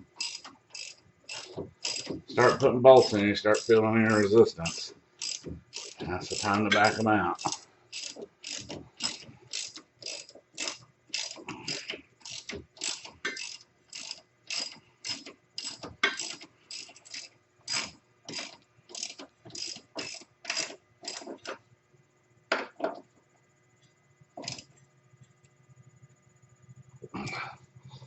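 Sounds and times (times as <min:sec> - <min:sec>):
ratchet wrench clicking: 0:00.2 - 0:21.3, 0:24.4 - 0:24.7.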